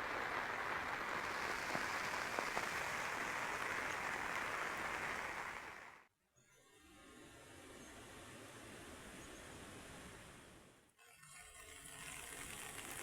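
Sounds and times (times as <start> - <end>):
heavy rain falling: 0.0 - 6.0.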